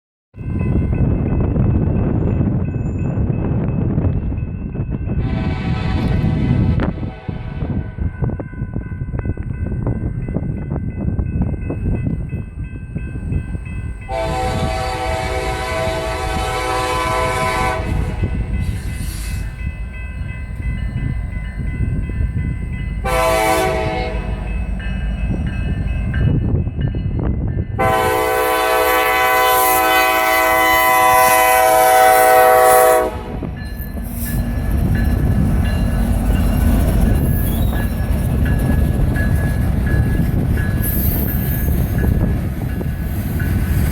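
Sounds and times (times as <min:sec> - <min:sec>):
rumble of rolling train: 0:00.4 - 0:43.9
train air horn blasts: 0:05.2 - 0:08.0, 0:14.1 - 0:19.4, 0:23.0 - 0:24.5, 0:27.8 - 0:33.6.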